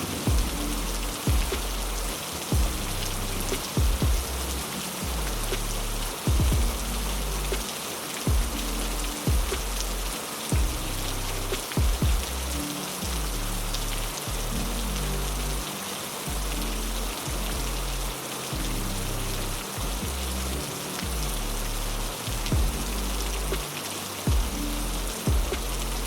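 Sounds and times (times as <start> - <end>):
heavy rain hissing: 0.0 - 26.0
soft low sustained music: 0.0 - 26.0
short low thumps: 0.2 - 7.6, 8.3 - 13.6, 22.3 - 23.6, 24.3 - 24.6, 25.3 - 26.0.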